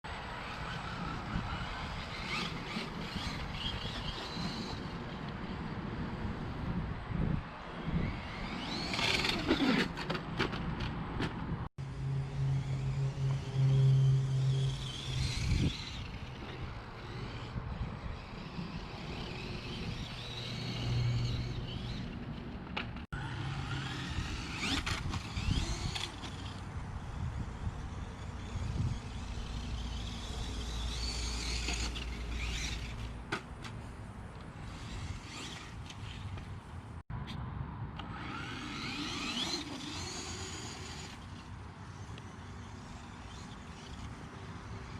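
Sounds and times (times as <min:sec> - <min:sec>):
electric motor whining: 0:11.8 - 0:22.4, 0:23.2 - 0:33.2, 0:38.0 - 0:44.2.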